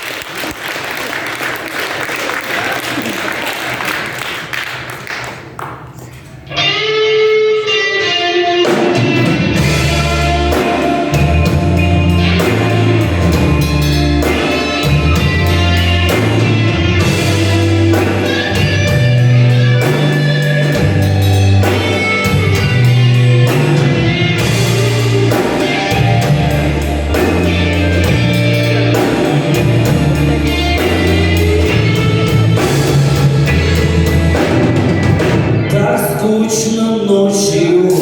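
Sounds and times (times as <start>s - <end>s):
guitar: 6.0s - 38.0s
drum kit beat: 7.7s - 35.8s
bass line: 8.7s - 36.4s.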